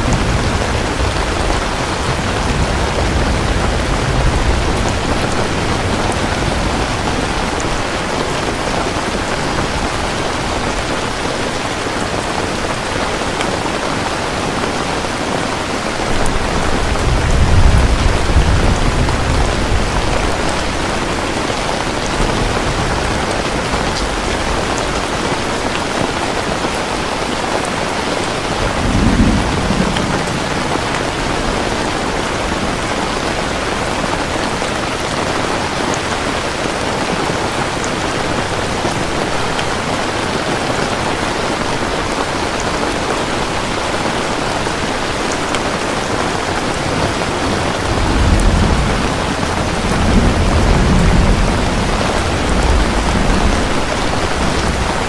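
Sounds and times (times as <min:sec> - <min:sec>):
distant thunder rumbling: 0:00.0 - 0:11.0, 0:16.0 - 0:25.7, 0:28.4 - 0:34.4, 0:46.2 - 0:55.0
steady rain: 0:00.0 - 0:55.0.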